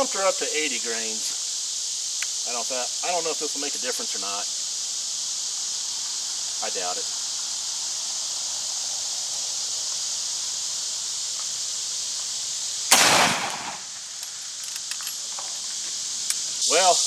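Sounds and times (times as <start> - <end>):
crickets chirring: 0.0 - 17.0
gunshot: 12.9 - 14.0.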